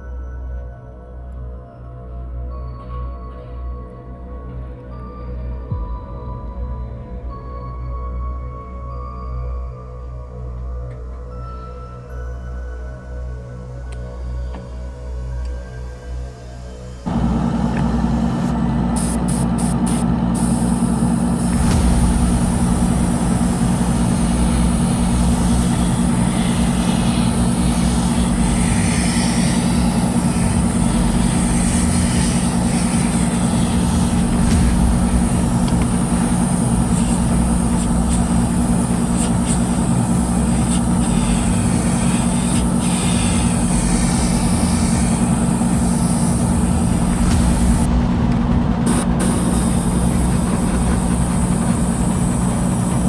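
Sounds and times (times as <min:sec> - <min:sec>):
low mechanical drone: 0:13.8 - 0:53.0.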